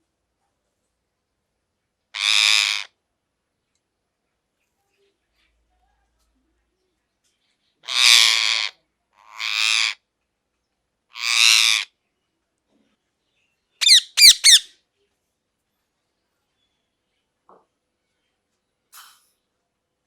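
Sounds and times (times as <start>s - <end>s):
parrot squawking: 2.2s - 2.9s, 7.8s - 8.7s, 9.3s - 10.0s, 11.2s - 11.9s, 13.8s - 14.7s.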